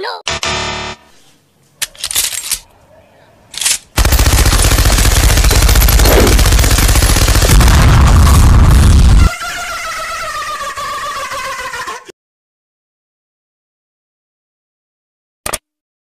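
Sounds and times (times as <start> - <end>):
machine-gun fire: 4.0 - 9.3
explosion rumble: 7.4 - 9.2.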